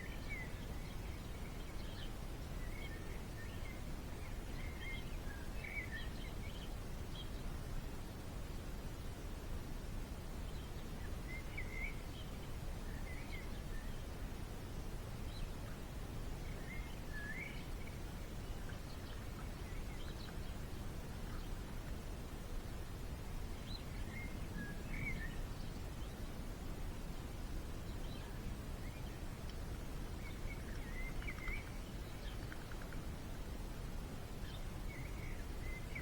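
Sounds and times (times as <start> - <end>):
small birds chirping: 15.2 - 26.4, 27.1 - 33.6, 34.2 - 36.0.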